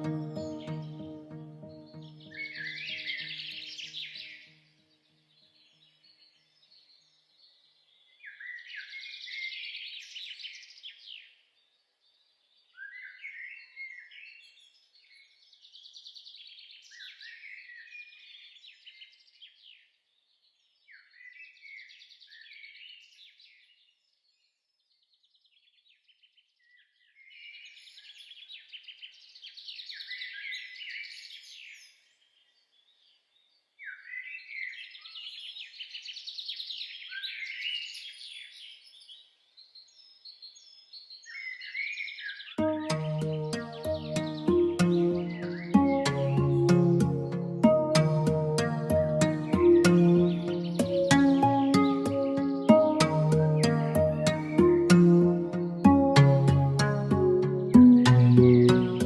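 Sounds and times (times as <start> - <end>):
songbird singing: 0.0 - 4.2, 42.6 - 59.0.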